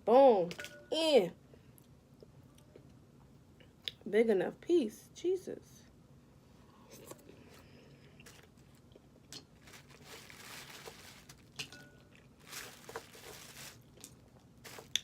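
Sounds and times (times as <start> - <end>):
crunching and chewing: 7.0 - 15.0.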